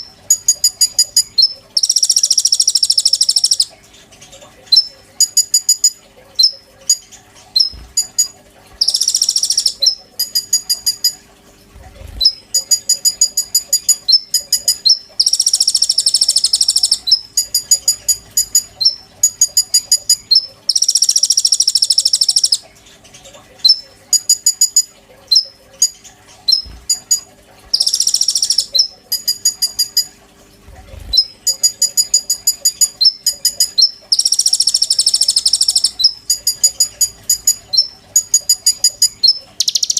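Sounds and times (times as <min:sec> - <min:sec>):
faint steady hum: 0:00.0 - 0:39.9
bird buzzing trill: 0:07.6 - 0:11.2
bird chipping notes: 0:12.2 - 0:22.6, 0:23.7 - 0:30.1, 0:31.0 - 0:39.9.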